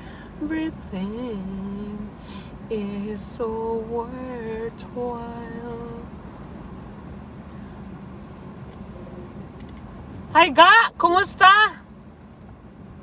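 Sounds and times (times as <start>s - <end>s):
woman singing gospel: 0.0s - 6.1s, 10.4s - 11.8s
road noise inside moving car: 0.0s - 13.0s.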